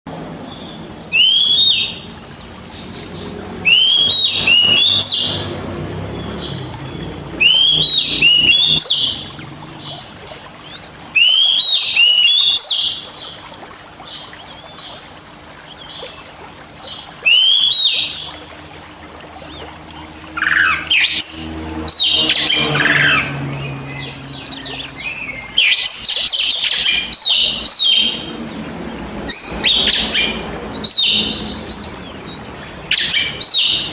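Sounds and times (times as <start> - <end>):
songbird singing whistled notes: 1.1 - 2.0, 11.2 - 13.3.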